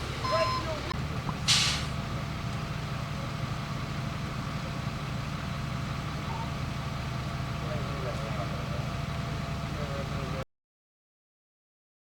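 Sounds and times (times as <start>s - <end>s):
heavy engine idling: 0.0s - 10.4s
short sharp hiss: 1.5s - 2.0s.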